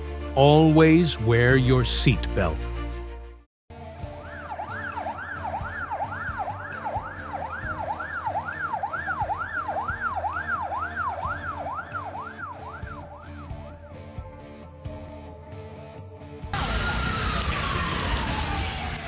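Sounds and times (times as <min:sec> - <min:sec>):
emergency siren yelping: 0:04.3 - 0:13.3, 0:16.6 - 0:19.0.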